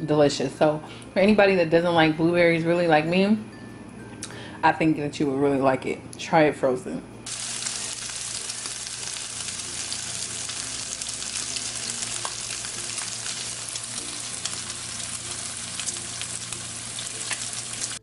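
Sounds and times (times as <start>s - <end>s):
meat sizzling with pops: 7.3s - 18.0s.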